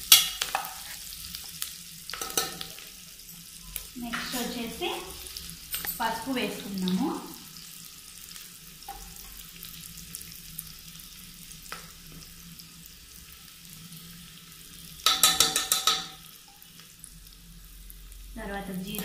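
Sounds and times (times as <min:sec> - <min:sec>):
onions sizzling in oil: 0:00.0 - 0:19.0
metal spoon clattering on pot: 0:02.2 - 0:02.7, 0:15.0 - 0:16.2.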